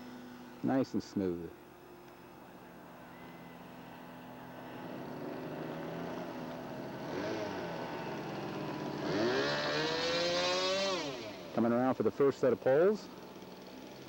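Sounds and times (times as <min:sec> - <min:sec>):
model aircraft engine in flight: 0:02.8 - 0:14.0.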